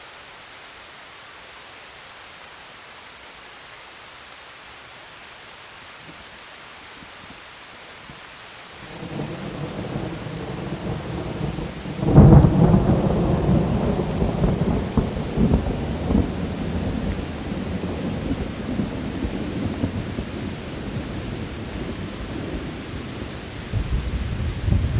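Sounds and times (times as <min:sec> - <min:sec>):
steady rain: 0:00.0 - 0:24.9
thunder rumble and clap: 0:08.9 - 0:24.9.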